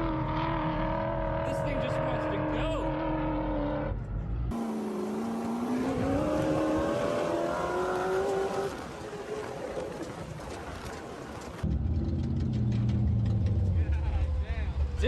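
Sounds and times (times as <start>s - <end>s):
engine accelerating hard: 0.0s - 9.5s.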